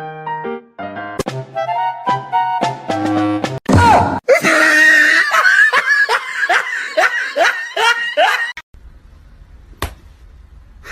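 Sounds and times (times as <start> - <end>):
person laughing hard: 4.3 - 8.6.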